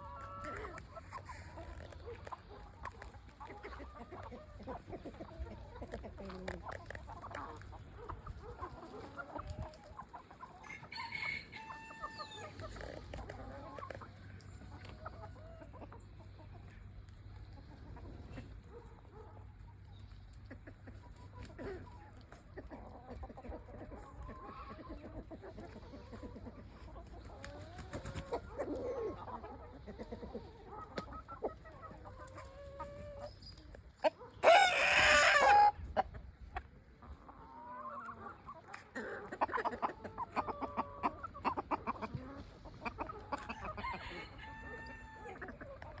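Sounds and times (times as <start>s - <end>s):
chickens clucking: 0.0s - 46.0s
rooster crowing: 10.6s - 12.5s, 43.7s - 45.3s.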